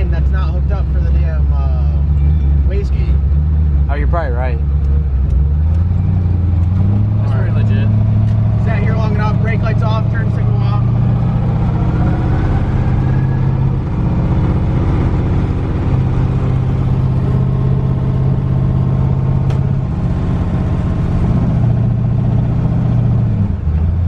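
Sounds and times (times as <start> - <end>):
deep car exhaust drone: 0.0 - 24.0.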